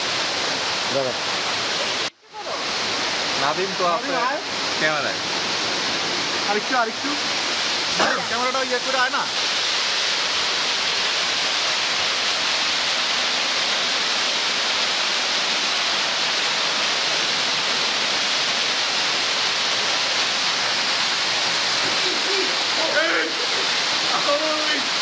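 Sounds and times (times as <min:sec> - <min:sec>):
waterfall pouring: 0:00.0 - 0:25.0.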